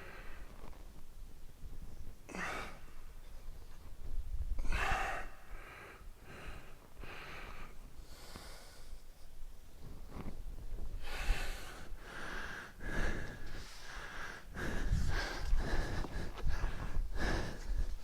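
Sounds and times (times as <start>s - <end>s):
man breathing hard: 4.6s - 9.1s, 11.0s - 18.0s.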